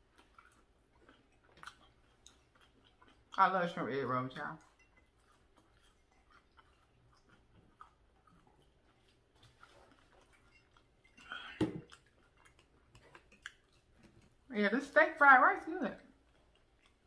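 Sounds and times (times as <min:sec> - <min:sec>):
quiet chewing: 0:00.0 - 0:14.6, 0:15.9 - 0:17.0.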